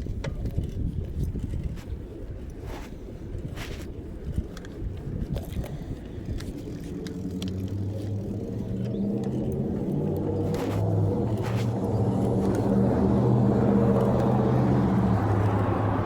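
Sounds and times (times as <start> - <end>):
motorcycle engine running: 6.5 - 16.0.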